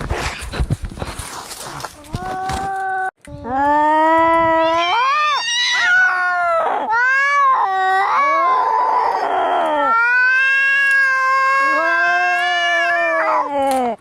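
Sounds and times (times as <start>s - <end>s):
cats yowling in a fight: 4.5s - 13.8s
cat screeching: 4.6s - 13.5s.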